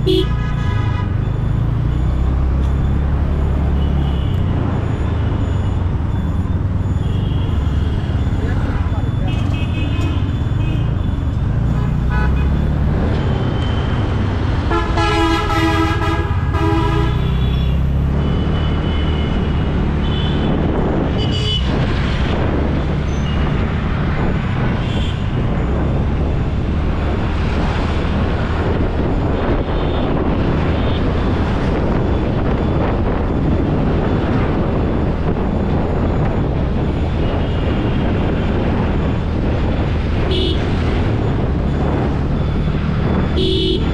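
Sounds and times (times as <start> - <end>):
vehicle horn: 0.0 - 1.2, 11.7 - 12.6, 14.6 - 17.8, 40.2 - 40.7, 43.3 - 43.9
low rumble of traffic: 0.0 - 43.9
wind: 0.0 - 43.9.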